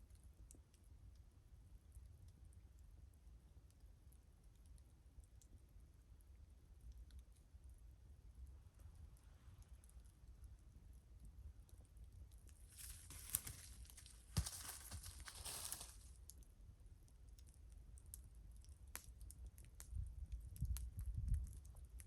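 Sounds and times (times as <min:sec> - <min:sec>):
wood fire crackling: 0:06.8 - 0:22.0
rustling hiss: 0:12.6 - 0:16.1.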